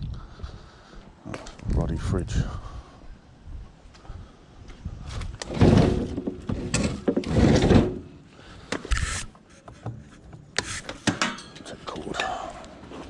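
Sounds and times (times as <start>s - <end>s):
scrap clattering and scraping: 5.1s - 12.1s.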